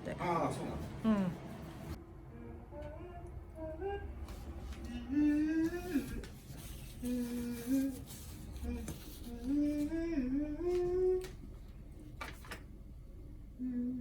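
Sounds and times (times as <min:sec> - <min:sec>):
person humming a tune: 0:02.3 - 0:04.2, 0:04.9 - 0:06.3, 0:07.0 - 0:11.4, 0:13.6 - 0:14.0.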